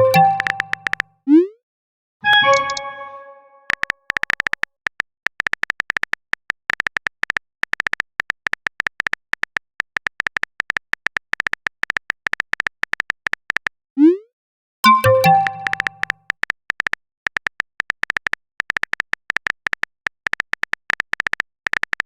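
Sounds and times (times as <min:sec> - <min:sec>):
brief notification chime: 0:00.0 - 0:00.9, 0:02.2 - 0:03.7, 0:14.9 - 0:16.0
short electronic typing beeps: 0:00.0 - 0:01.0, 0:02.2 - 0:03.9, 0:14.8 - 0:16.2.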